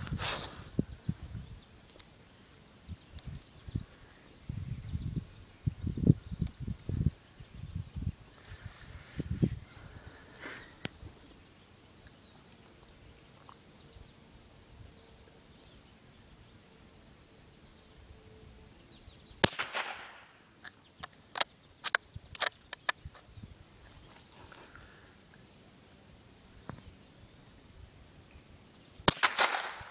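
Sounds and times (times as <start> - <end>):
rifle shot with echo: 19.4 - 20.3, 29.1 - 29.9
sharp clicks of rifle bolt: 19.4 - 23.0, 29.1 - 29.8.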